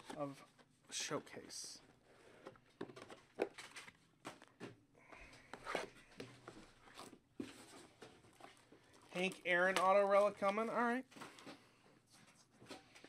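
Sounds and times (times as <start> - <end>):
cards and packaging rustling: 0.0 - 13.0.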